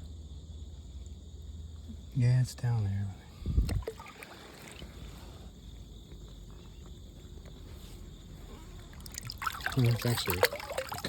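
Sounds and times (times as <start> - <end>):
river water rumbling: 3.7 - 5.4, 8.8 - 11.0.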